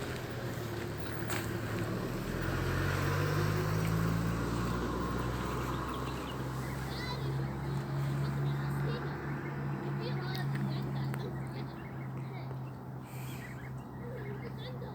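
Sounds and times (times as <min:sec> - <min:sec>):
vehicle passing: 0:00.0 - 0:14.9.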